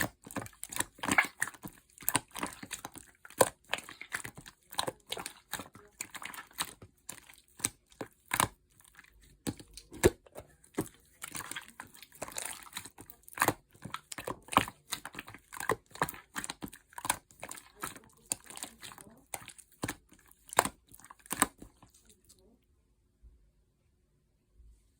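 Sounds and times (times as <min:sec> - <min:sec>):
slime squeezed by hand: 0:00.8 - 0:06.7.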